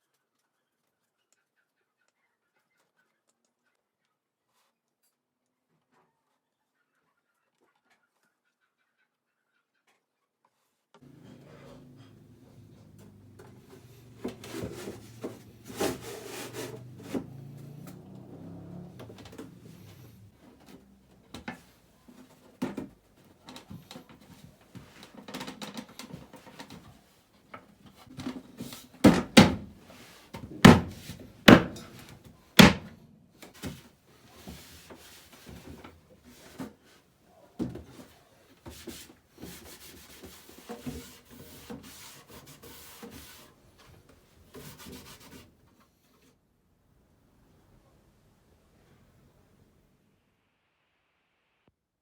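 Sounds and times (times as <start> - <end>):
wood rubbing and scraping: 11.0 - 26.9, 27.8 - 32.9
sharp knocks on wood: 29.0 - 29.7, 30.4 - 32.0, 32.6 - 32.9.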